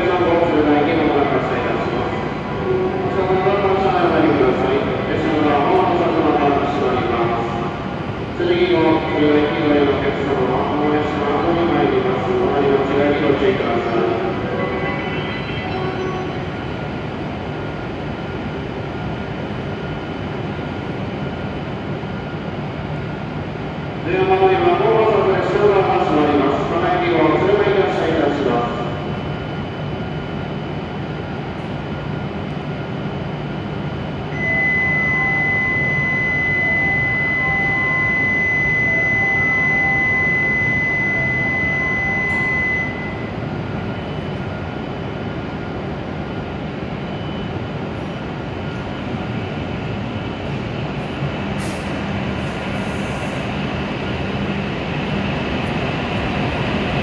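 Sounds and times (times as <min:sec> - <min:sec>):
train humming at platform: 0:00.0 - 0:57.0
high electronic departure tone: 0:34.3 - 0:44.4
train pulling out: 0:47.0 - 0:57.0.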